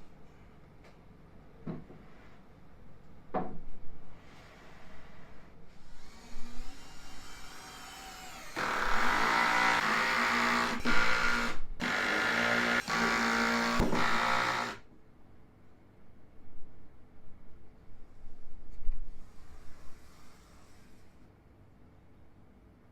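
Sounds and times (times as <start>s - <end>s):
power tool motor running: 7.2s - 14.8s.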